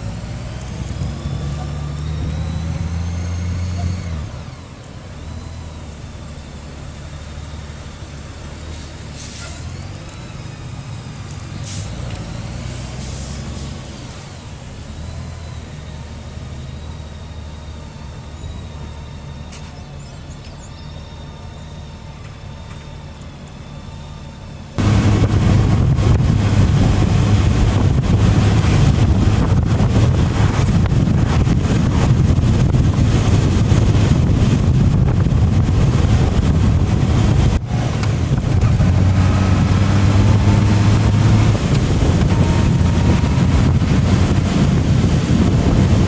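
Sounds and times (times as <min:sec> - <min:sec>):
motorcycle engine running: 0:24.8 - 0:37.5
wind rush on microphone: 0:24.8 - 0:46.0.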